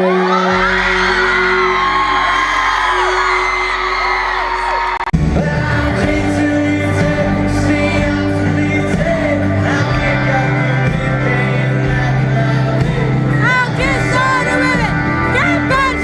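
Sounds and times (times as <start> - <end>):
crowd screaming: 0.0 - 6.0
live band playing: 0.0 - 16.0
person singing: 5.2 - 16.0.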